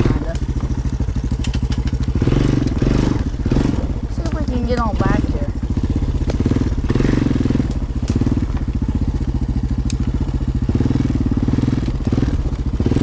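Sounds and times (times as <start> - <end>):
atv engine running: 0.0 - 13.0
brush snapping against vehicle: 0.3 - 5.0, 6.2 - 6.6, 7.4 - 10.2.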